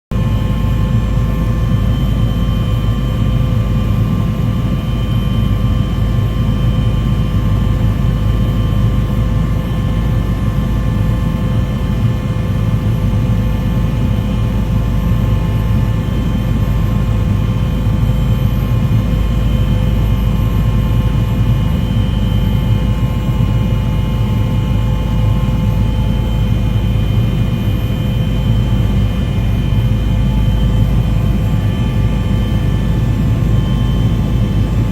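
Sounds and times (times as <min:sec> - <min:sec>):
steady whining tones: 0:15.1 - 0:34.9.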